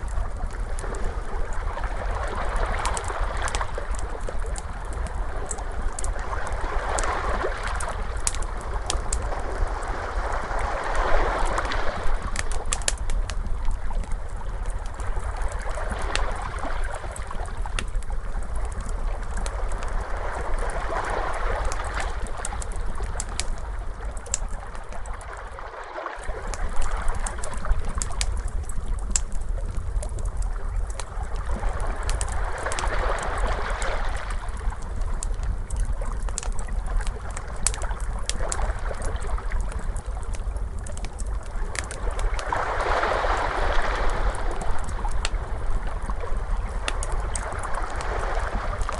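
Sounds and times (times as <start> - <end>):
wood fire crackling: 0.0 - 25.4, 26.2 - 48.9
low steady rumble: 0.0 - 48.9
ocean waves washing in: 9.2 - 12.5, 24.8 - 27.8, 42.1 - 48.9.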